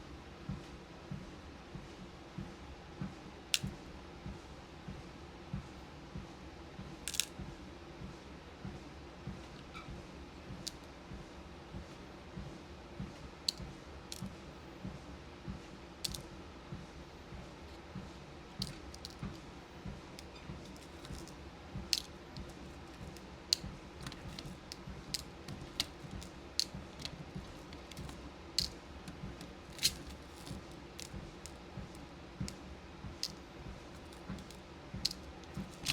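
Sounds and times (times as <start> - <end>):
beads clicking and tapping: 7.1 - 7.3, 10.6 - 10.9, 13.5 - 14.3, 16.0 - 16.3, 18.6 - 19.5, 20.2 - 35.9
walking pad hum: 16.0 - 35.9
soft footsteps: 18.6 - 19.5, 20.2 - 35.9.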